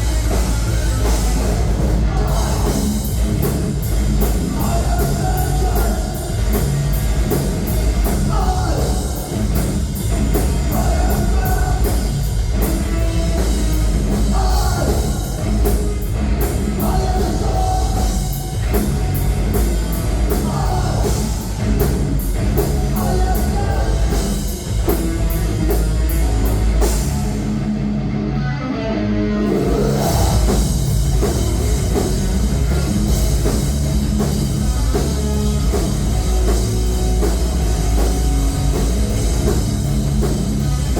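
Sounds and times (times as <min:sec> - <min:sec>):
rock band playing loudly: 0:00.0 - 0:40.9.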